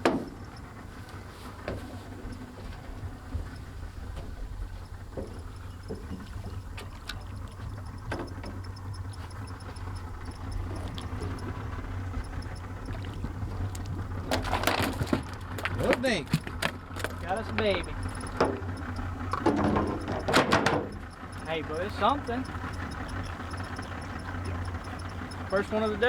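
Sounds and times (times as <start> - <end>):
boat motor idling: 0.0 - 26.0
knocks and clicks: 3.4 - 21.4.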